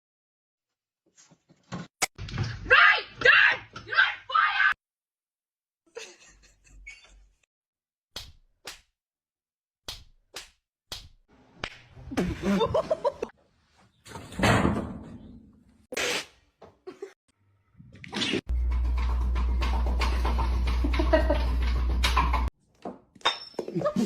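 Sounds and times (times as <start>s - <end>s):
sharp slap-like smacks: 8.2s - 8.9s, 9.9s - 11.8s.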